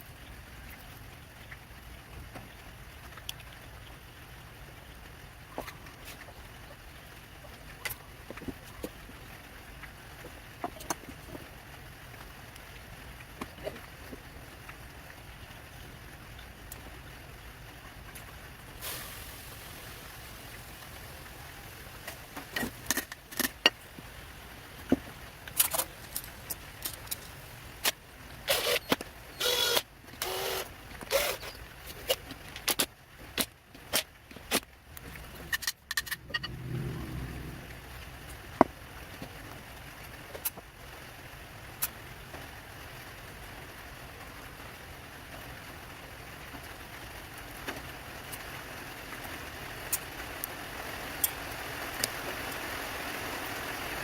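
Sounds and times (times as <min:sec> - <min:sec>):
low hum: 0:35.1 - 0:38.9.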